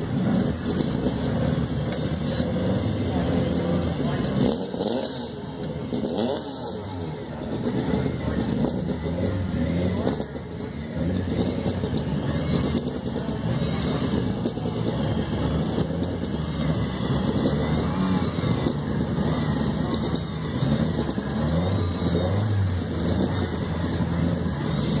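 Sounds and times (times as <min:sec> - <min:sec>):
rally car engines rumbling: 0:00.0 - 0:25.0.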